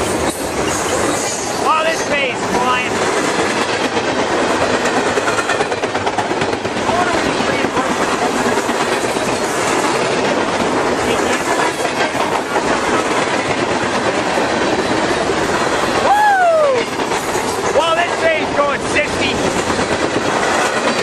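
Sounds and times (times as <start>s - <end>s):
freight train rumbling past: 0.0s - 21.0s
rapid clicking of wheels: 3.0s - 16.1s, 19.3s - 21.0s.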